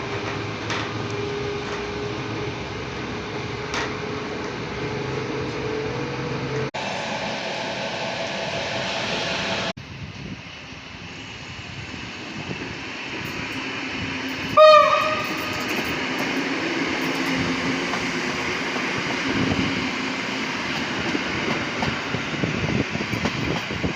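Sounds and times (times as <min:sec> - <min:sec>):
electric train running past: 0:00.0 - 0:23.9
train horn blast: 0:14.4 - 0:15.7.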